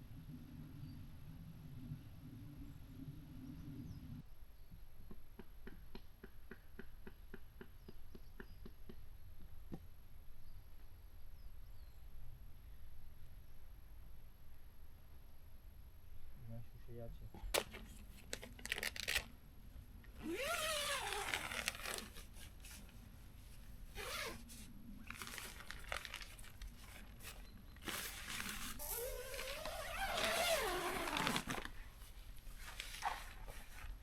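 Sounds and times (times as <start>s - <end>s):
tent fabric rustling: 17.6s - 19.2s, 20.2s - 34.0s.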